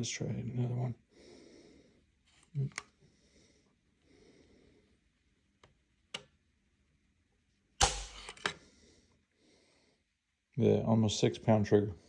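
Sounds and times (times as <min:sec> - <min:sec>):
sharp rifle trigger snap: 0:07.8 - 0:08.6.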